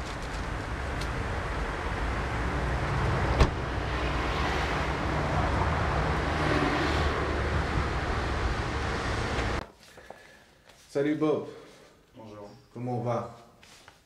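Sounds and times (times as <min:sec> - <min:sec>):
street noise: 0:00.0 - 0:09.7
wind rumble on microphone: 0:02.9 - 0:09.6
car door shutting: 0:03.3 - 0:03.6.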